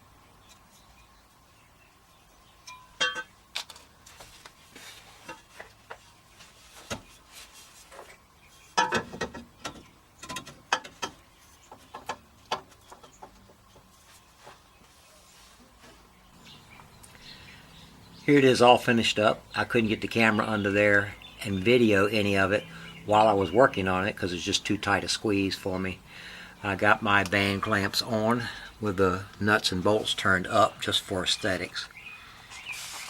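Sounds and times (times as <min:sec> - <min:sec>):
metallic clinks and knocks: 0:02.6 - 0:03.8.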